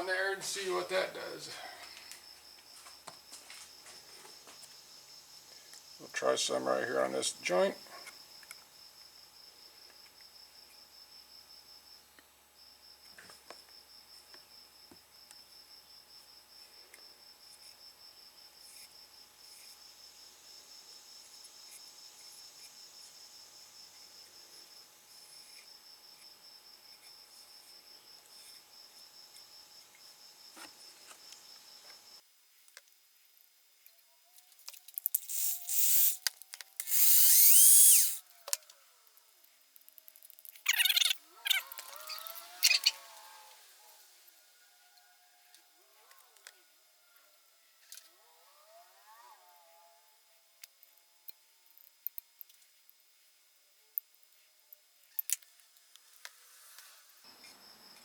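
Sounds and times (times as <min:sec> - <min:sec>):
cricket chirping: 0:01.0 - 0:32.2, 0:34.7 - 0:38.3, 0:39.1 - 0:44.7, 0:55.0 - 0:58.0
aerosol can spraying: 0:35.2 - 0:36.2, 0:36.8 - 0:38.2.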